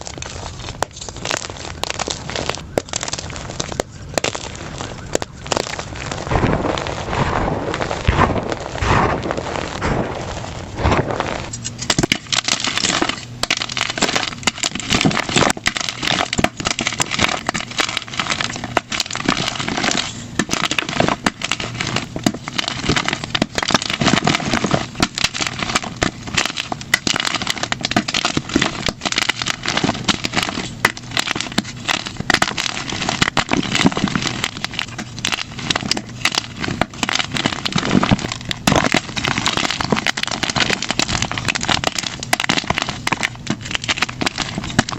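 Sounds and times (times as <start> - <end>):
chalk crunching by hand: 0.0 - 44.9.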